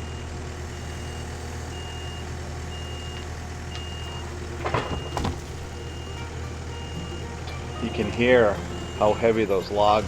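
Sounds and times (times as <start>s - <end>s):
skid steer engine running: 0.0s - 10.0s
backup alarm beeping: 3.8s - 9.6s
logs banging down: 4.6s - 5.8s.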